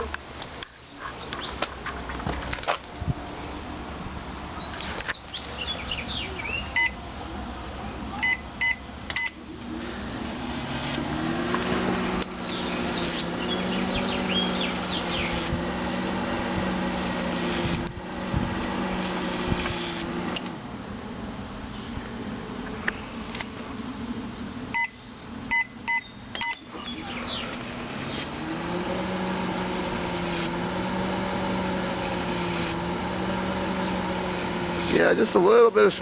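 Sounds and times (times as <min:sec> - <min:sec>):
birds chirping faintly: 0:00.5 - 0:02.2, 0:04.2 - 0:09.6, 0:10.9 - 0:16.5, 0:22.7 - 0:30.0
microwave keypad beeping: 0:06.7 - 0:07.0, 0:08.2 - 0:09.4, 0:24.8 - 0:26.7
microwave oven humming: 0:26.5 - 0:34.9.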